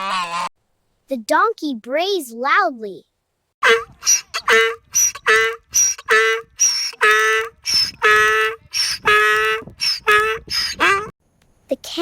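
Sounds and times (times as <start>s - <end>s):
donkey braying: 3.6s - 11.1s.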